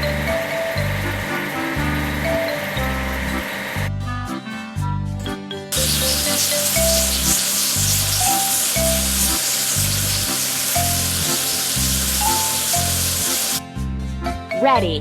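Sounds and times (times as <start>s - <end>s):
music with bass beat: 0.0s - 15.0s
hissing water spray: 5.8s - 13.6s.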